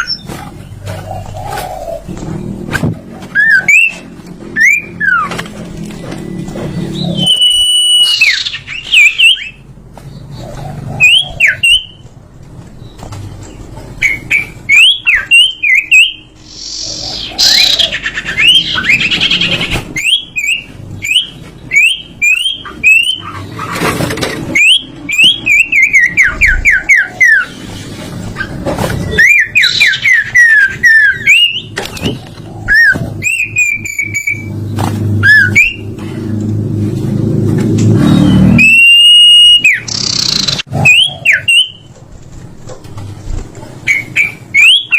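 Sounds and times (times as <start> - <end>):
songbird whistling song: 3.3 - 5.4, 6.0 - 12.0, 12.8 - 23.8, 24.4 - 27.8, 28.4 - 34.6, 35.2 - 35.9, 38.0 - 41.9, 43.8 - 44.9.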